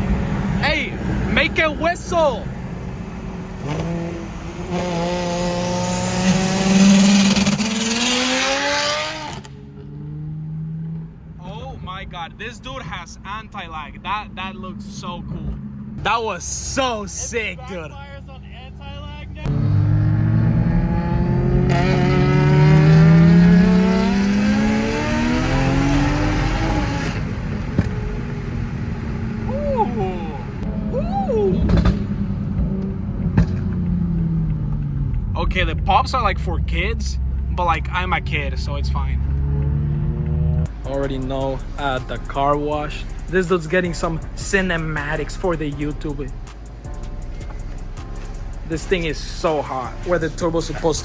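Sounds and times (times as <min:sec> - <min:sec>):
car engine revving: 0:00.0 - 0:51.0
exhaust pop: 0:19.4 - 0:30.7, 0:31.6 - 0:51.0.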